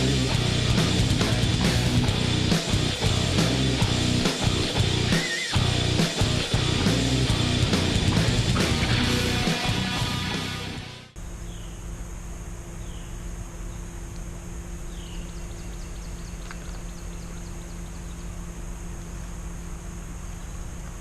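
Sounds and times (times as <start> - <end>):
low even hum: 11.1 - 21.0
small bird chirping: 11.4 - 11.8, 12.7 - 14.0, 14.8 - 19.3.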